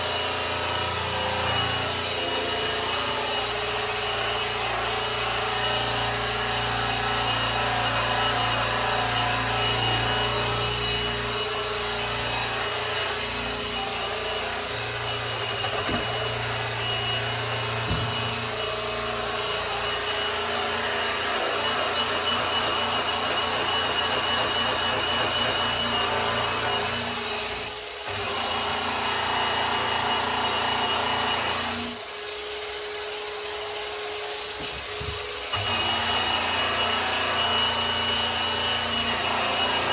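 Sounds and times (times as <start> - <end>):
electric polisher motor hum: 0.0 - 32.8, 34.3 - 39.9.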